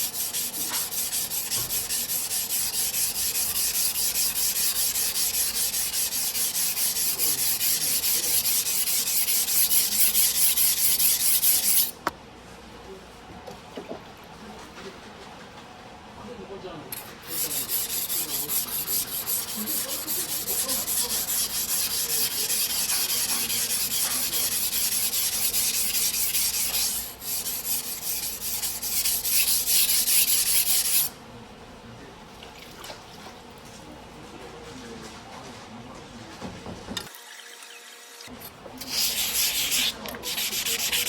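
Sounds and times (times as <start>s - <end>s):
steel blade scraping on whetstone: 0.0s - 11.9s, 17.0s - 31.1s.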